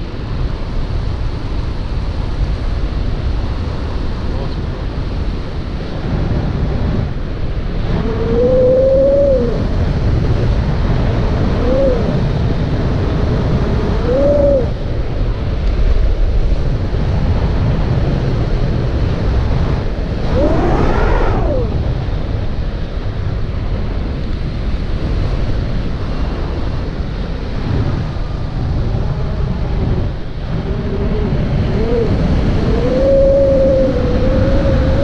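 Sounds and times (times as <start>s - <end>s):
wind rumbling on microphone: 0.0s - 35.0s.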